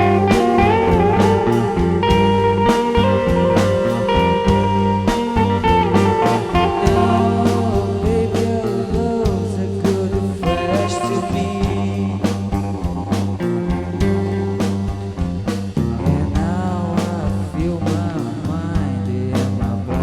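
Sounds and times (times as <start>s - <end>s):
electric guitar bent notes: 0.0s - 19.0s
psychedelic rock band playing: 0.0s - 20.0s.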